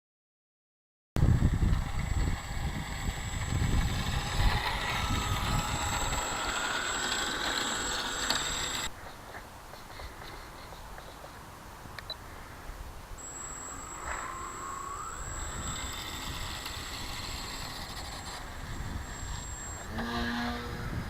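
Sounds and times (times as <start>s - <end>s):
wind buffeting microphone: 1.2s - 8.9s, 13.9s - 21.0s
electric motor and propeller whine: 1.2s - 9.0s, 13.1s - 21.0s.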